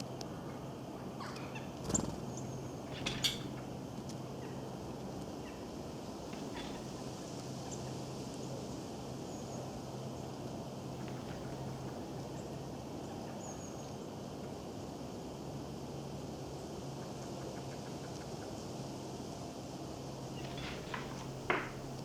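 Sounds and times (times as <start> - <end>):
loud bird calls or rattles: 2.9 - 3.6, 6.3 - 7.0, 11.0 - 11.9.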